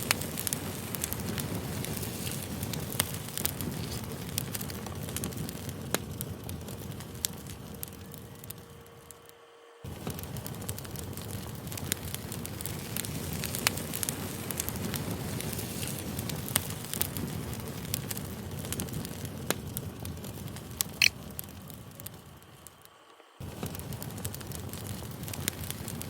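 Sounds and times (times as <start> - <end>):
campfire burning with crackles: 0.0 - 26.0.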